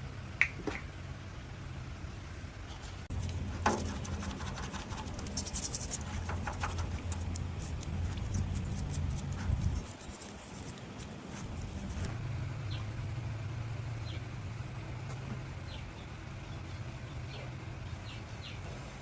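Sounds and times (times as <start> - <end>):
low steady hum: 0.0 - 19.0
scraping on metal parts: 2.7 - 12.2.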